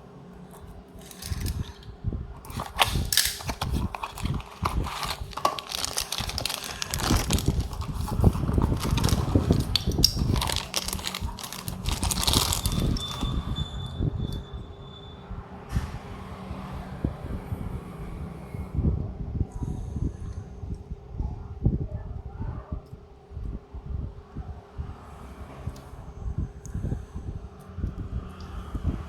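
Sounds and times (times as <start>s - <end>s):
packaging crackling: 1.0s - 13.5s.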